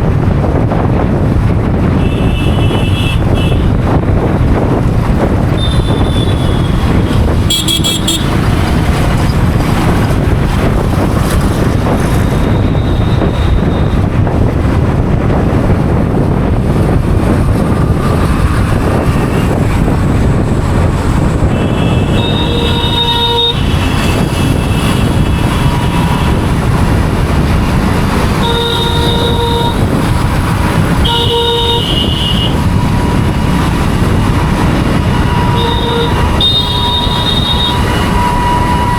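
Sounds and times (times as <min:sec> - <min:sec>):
wind and road noise: 0:00.0 - 0:38.9
traffic horns honking: 0:01.9 - 0:03.9, 0:05.4 - 0:10.1, 0:12.2 - 0:14.2, 0:18.0 - 0:20.0, 0:20.8 - 0:38.9.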